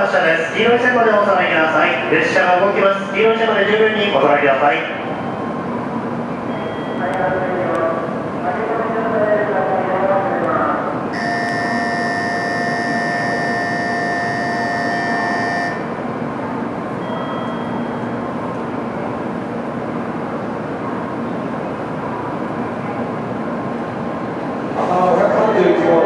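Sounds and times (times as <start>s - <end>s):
train pulling into platform: 0.0s - 26.0s
electronic buzzer tone: 11.2s - 16.1s.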